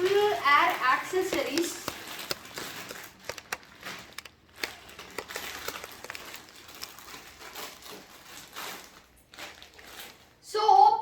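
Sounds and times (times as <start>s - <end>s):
packaging crinkling: 0.0s - 10.4s
small clicks and taps: 1.1s - 7.0s.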